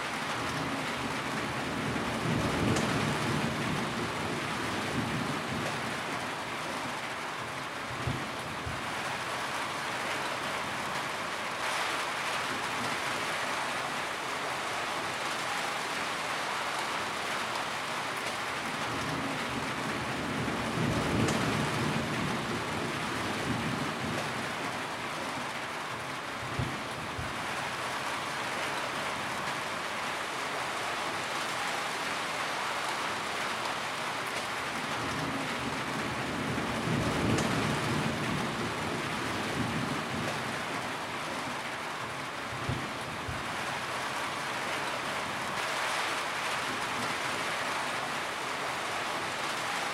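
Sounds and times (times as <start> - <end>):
rain on a tin roof: 0.0 - 49.9
thunder rumbles: 34.8 - 40.6.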